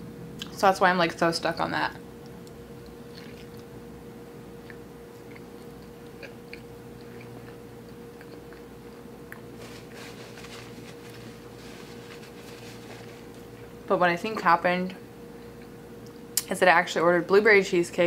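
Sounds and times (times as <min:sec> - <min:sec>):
faint steady hum: 0:00.0 - 0:18.0
woman chewing with mouth clicks: 0:02.4 - 0:03.7, 0:04.6 - 0:09.6.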